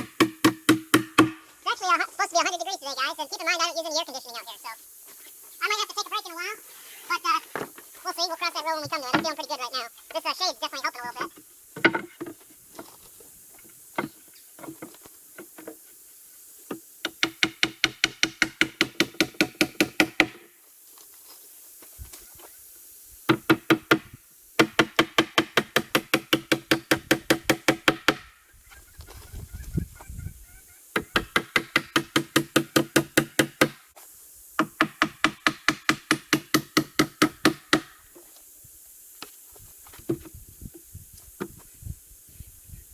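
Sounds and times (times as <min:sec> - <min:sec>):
hammer driving nails into wood: 0:00.0 - 0:01.5, 0:17.1 - 0:20.4, 0:23.3 - 0:28.3, 0:31.0 - 0:33.8, 0:34.6 - 0:38.0.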